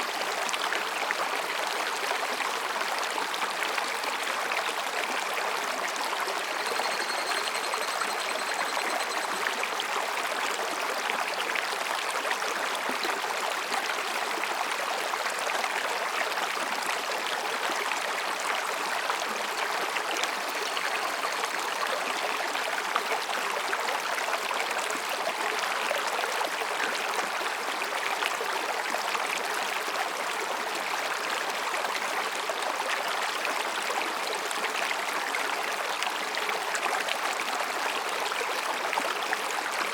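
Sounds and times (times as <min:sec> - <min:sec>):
faint high tone: 0:06.4 - 0:09.5.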